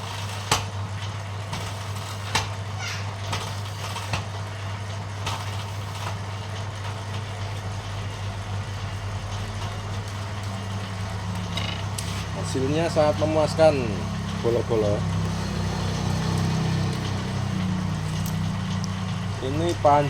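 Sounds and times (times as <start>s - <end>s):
machine humming: 9.8s - 20.0s.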